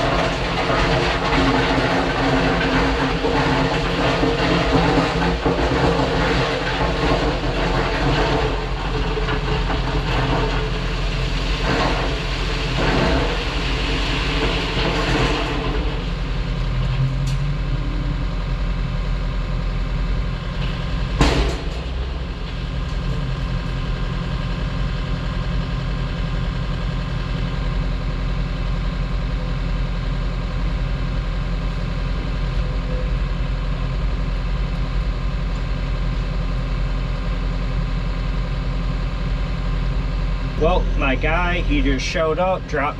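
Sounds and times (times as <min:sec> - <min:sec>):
heavy diesel engine running: 0:00.0 - 0:42.9.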